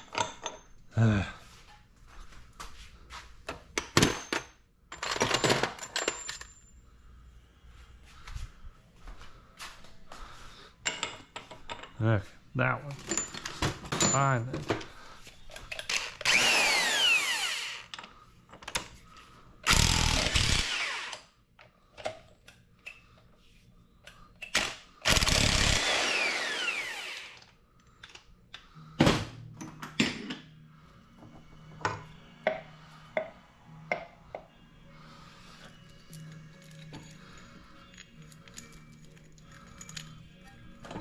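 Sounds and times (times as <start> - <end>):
handheld power tool running: 15.9 - 17.9, 19.7 - 21.2, 25.0 - 27.4
metallic clicks of tools handled: 35.9 - 41.0.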